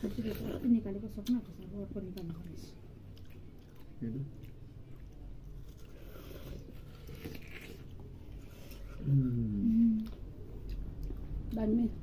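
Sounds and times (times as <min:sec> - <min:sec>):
wet biting and chewing: 0:00.0 - 0:09.0.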